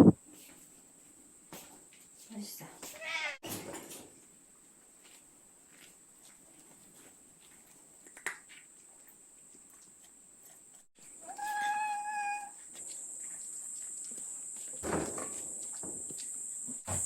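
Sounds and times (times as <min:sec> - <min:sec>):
cat meowing: 0:03.0 - 0:03.4, 0:11.2 - 0:12.6
insects chirring: 0:11.0 - 0:17.0.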